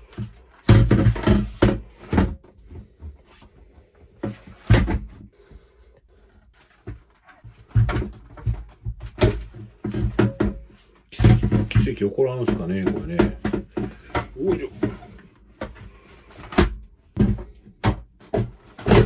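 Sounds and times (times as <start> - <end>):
air conditioner frame knocking: 7.8 - 15.1, 17.2 - 19.0.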